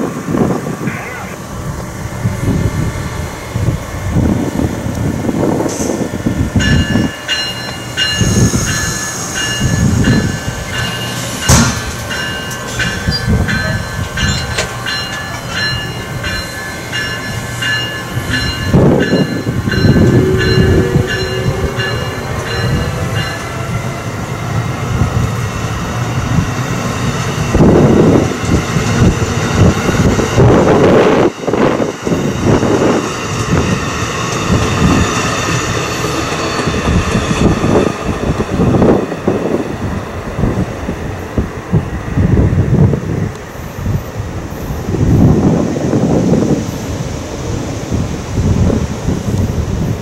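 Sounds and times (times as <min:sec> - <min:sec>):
train wheels clicking over rail joints: 0:04.9 - 0:23.6.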